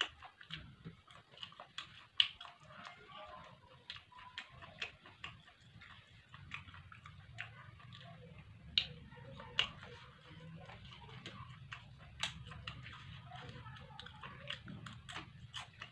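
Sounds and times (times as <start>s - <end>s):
chewing food mouth sounds: 0.0s - 15.9s
sharp clicks and crackles: 0.0s - 15.9s.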